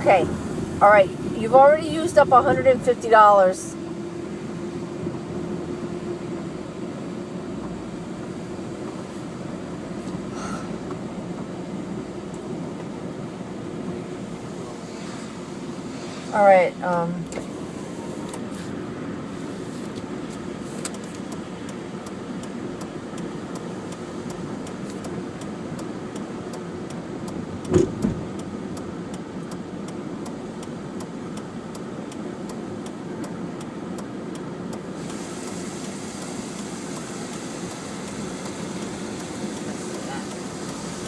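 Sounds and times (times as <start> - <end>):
car engine and road noise: 0.0 - 41.0
light ticks: 19.9 - 41.0.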